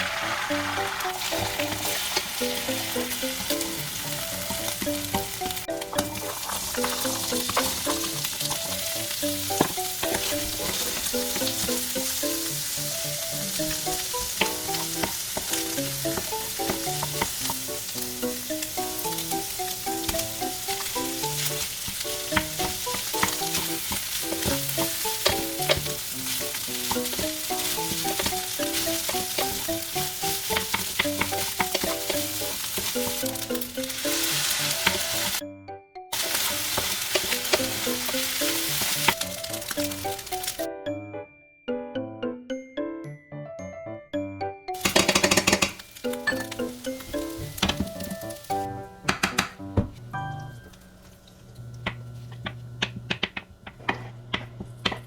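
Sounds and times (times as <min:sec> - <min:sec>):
food sizzling in a frying pan: 0:00.0 - 0:35.4, 0:36.1 - 0:40.7, 0:44.8 - 0:48.7
gentle melodic background music: 0:00.0 - 0:51.2
utensil scraping a pan: 0:05.8 - 0:11.4, 0:36.2 - 0:39.2.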